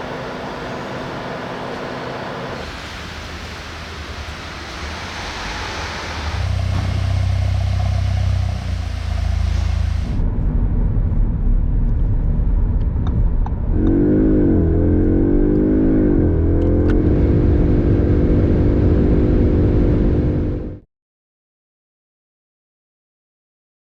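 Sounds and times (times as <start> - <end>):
car engine revving: 0.0 - 10.2, 13.6 - 20.8
rushing noise: 0.0 - 20.8.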